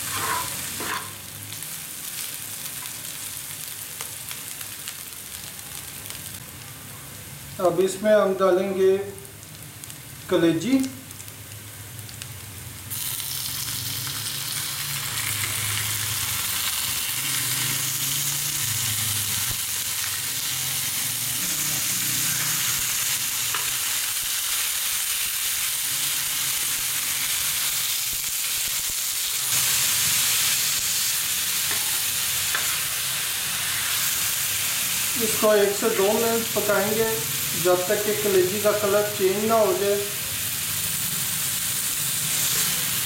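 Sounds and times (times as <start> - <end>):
metal spatula scraping: 0.0 - 1.2
liver sizzling on a griddle: 0.0 - 43.0.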